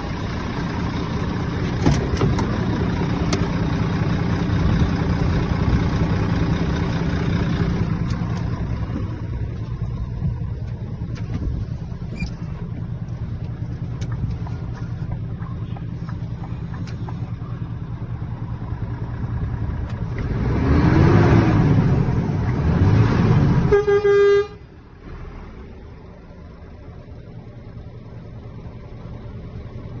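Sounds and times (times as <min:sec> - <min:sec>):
diesel truck engine idling and revving: 0:00.0 - 0:30.0
truck horn toot: 0:23.5 - 0:24.7.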